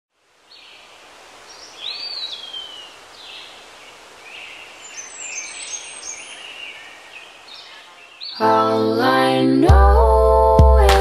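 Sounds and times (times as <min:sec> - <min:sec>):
steady background hiss: 0:00.1 - 0:11.0
songbirds singing: 0:00.4 - 0:09.0.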